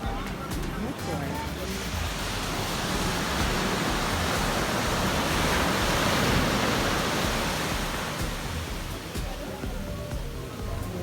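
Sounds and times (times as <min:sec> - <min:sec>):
wave breaking on sand: 0:00.6 - 0:11.0.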